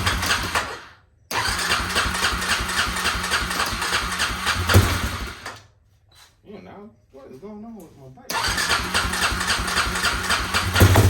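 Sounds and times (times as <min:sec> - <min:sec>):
engine cranking on electric starter: 0:00.0 - 0:05.6, 0:08.3 - 0:11.0.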